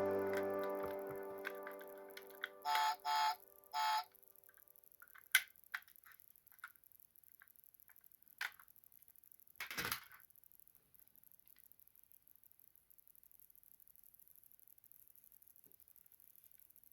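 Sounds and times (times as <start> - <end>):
short musical tone: 0.0 - 4.0
toy cars clicking and tapping: 3.9 - 16.9.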